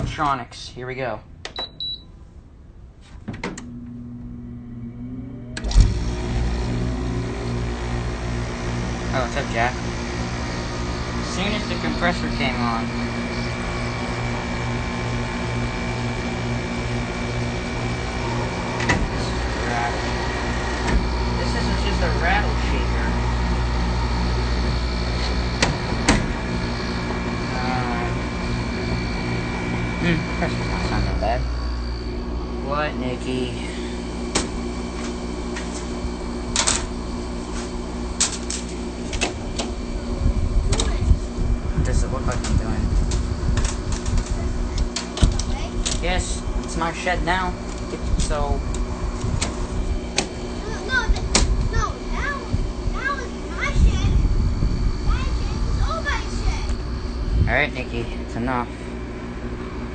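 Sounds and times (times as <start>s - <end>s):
air conditioner humming: 0.0s - 59.9s
faint high whine: 26.2s - 34.9s.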